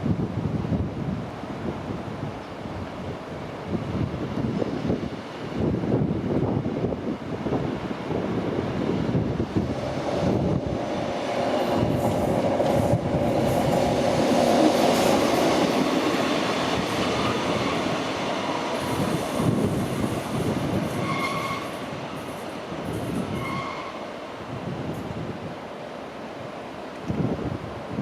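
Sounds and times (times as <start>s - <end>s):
train running on rails: 0.0s - 28.0s
thin high squeal: 21.0s - 22.4s, 23.1s - 24.0s.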